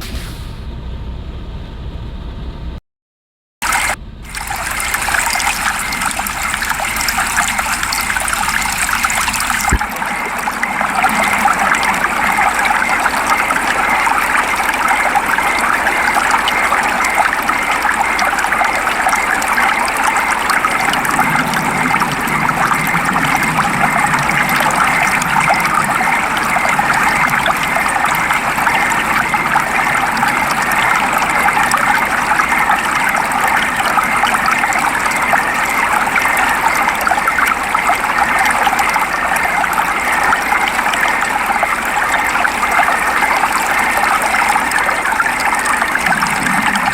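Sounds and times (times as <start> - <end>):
steady rain falling: 3.7 - 46.9
low rumble: 4.0 - 16.3, 45.7 - 46.9.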